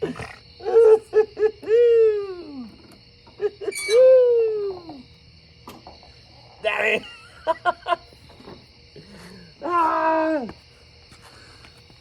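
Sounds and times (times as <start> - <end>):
person whooping: 0.6 - 2.7, 3.7 - 5.0, 9.6 - 10.5.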